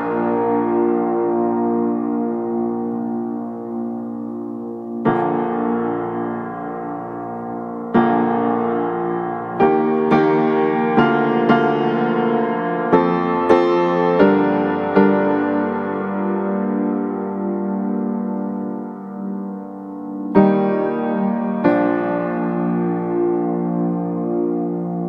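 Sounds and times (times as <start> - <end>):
piano chords and notes: 0.0 - 25.0.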